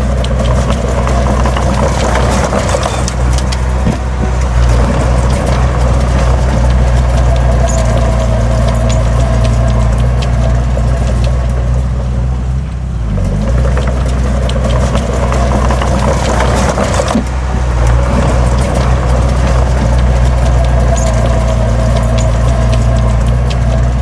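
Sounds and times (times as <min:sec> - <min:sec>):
heavy diesel machinery running: 0:00.0 - 0:24.0
metallic clanks and knocks: 0:00.0 - 0:24.0.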